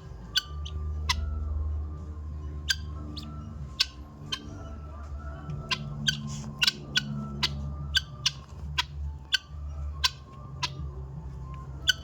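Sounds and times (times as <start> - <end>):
guinea fowl harsh calls: 5.6 - 10.9.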